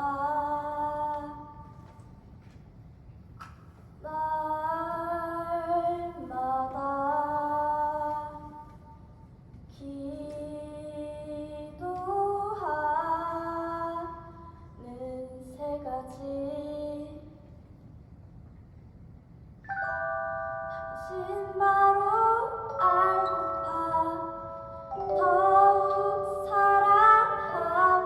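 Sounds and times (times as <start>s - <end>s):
woman singing: 0.0s - 1.7s, 4.0s - 8.8s, 9.7s - 17.4s, 20.8s - 28.0s
sustained instrumental chord: 19.7s - 28.0s.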